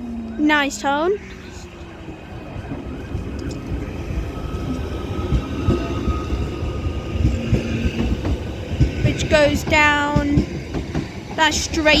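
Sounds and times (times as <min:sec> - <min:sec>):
electric train rumble: 0:00.0 - 0:12.0
thin train whine: 0:00.0 - 0:12.0.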